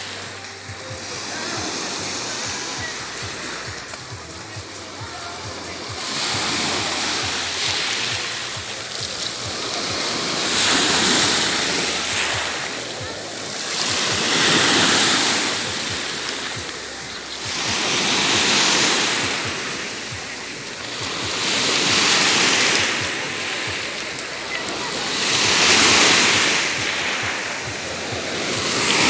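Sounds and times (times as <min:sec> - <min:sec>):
sea waves breaking on shore: 0:00.0 - 0:29.0.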